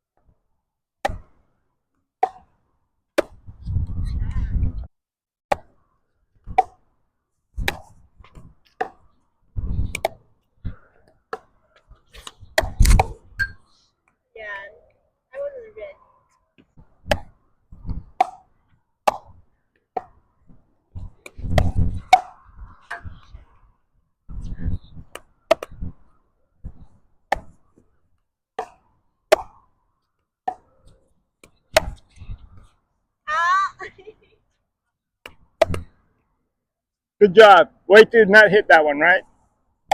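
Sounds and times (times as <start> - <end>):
tennis balls struck by rackets: 1.0 - 1.4, 2.2 - 3.5, 6.4 - 6.9, 7.6 - 9.1, 9.8 - 10.3, 11.3 - 13.6, 16.6 - 20.2, 21.1 - 23.2, 25.0 - 25.9, 26.7 - 27.6, 28.5 - 29.7, 30.4 - 30.7, 31.4 - 32.1, 35.2 - 35.9
tennis balls bouncing on court: 2.2 - 2.5, 16.6 - 20.2, 25.0 - 25.9, 28.6 - 29.6, 35.2 - 35.9
wind rumble on microphone: 3.4 - 4.9, 9.6 - 10.0, 21.0 - 23.6, 24.3 - 25.1.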